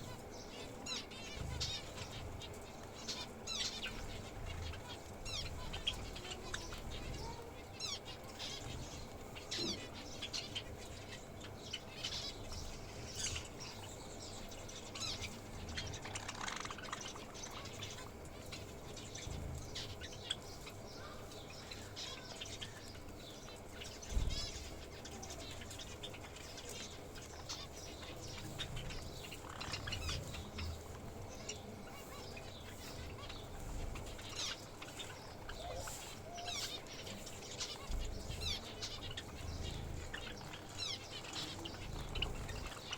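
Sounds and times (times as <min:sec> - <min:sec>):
small birds chirping: 0:00.0 - 0:42.9
wing flutters: 0:14.9 - 0:20.8.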